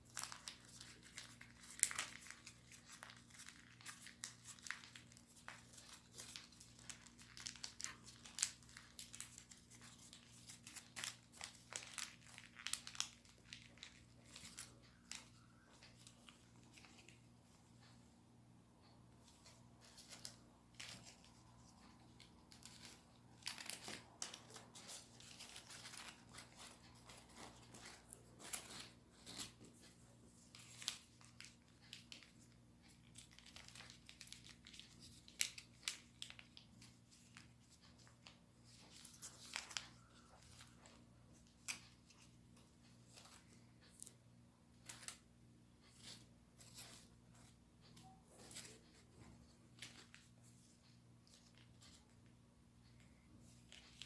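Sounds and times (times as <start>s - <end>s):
paper being folded and creased: 0.0s - 17.9s, 19.3s - 42.4s
faint steady hum: 0.0s - 54.0s.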